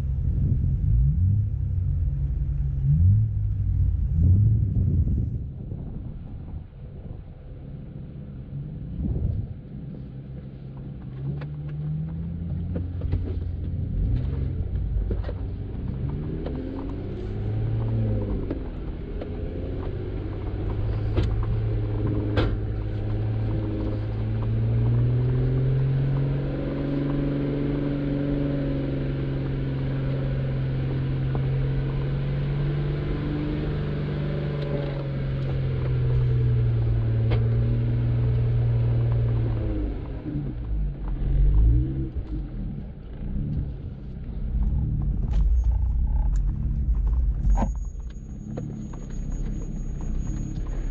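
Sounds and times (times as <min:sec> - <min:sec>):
car engine revving: 0:00.0 - 0:06.3, 0:08.4 - 0:50.9.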